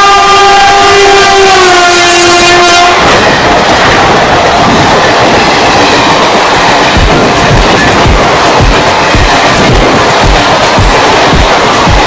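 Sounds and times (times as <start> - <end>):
locomotive horn blast: 0.0 - 3.2
passenger coaches rolling past: 0.0 - 12.0.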